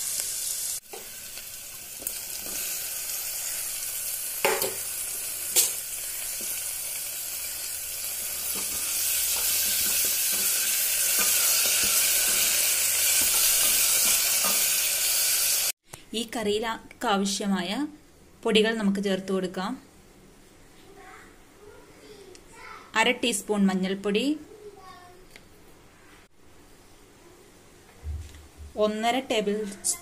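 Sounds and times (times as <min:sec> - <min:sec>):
vegetables sizzling in hot oil: 0:00.0 - 0:15.8.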